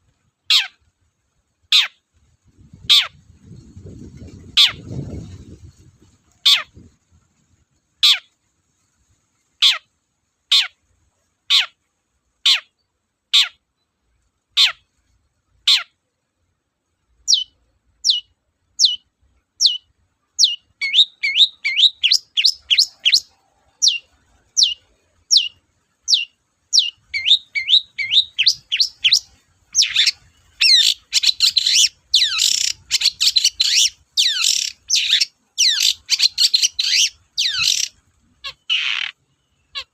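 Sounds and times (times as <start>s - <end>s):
shrike whistling and chattering: 20.4s - 24.0s, 26.1s - 39.1s.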